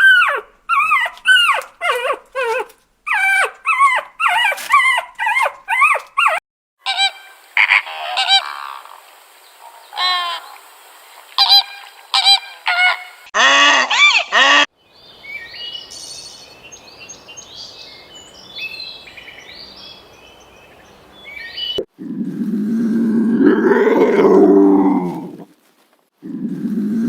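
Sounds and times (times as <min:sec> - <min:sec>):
high chirping calls: 0:14.9 - 0:21.9.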